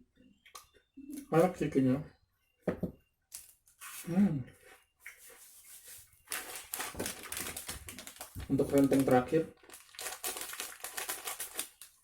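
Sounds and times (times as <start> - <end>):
plastic snack packet crackling: 6.3 - 12.0.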